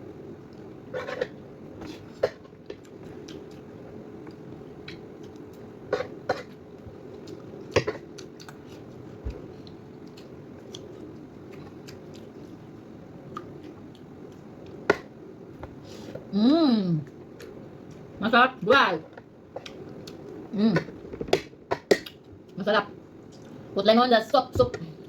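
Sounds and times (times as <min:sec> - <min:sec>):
low background hum: 0:00.0 - 0:25.0
quiet chewing: 0:00.4 - 0:12.6, 0:23.3 - 0:23.6.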